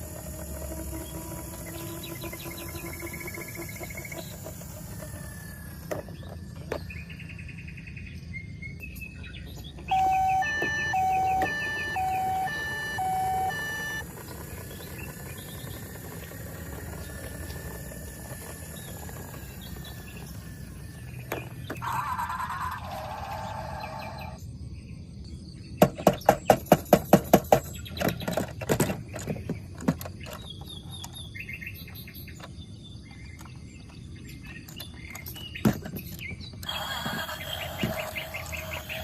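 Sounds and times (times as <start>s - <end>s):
steady low hum: 0.0s - 25.8s
short electronic tones: 9.8s - 14.1s, 36.6s - 39.0s
toy beeping high and low: 9.8s - 23.3s, 36.6s - 39.0s.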